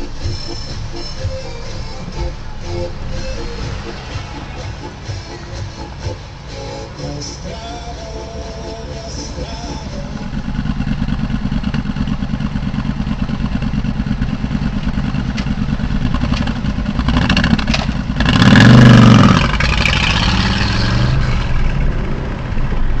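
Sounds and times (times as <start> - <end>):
motorcycle passing close: 8.6 - 23.0.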